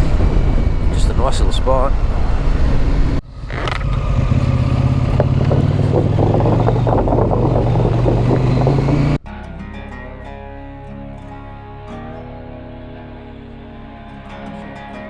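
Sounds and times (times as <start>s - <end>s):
motorcycle engine running: 0.0s - 9.2s
acoustic guitar music: 4.8s - 15.0s.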